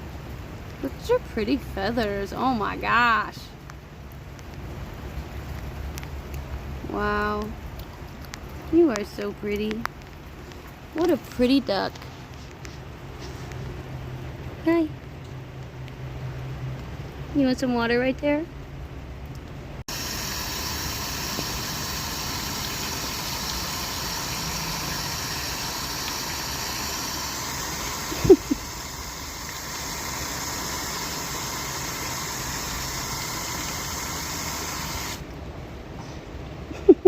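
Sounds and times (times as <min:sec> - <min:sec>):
running water rushing: 0:19.8 - 0:35.7.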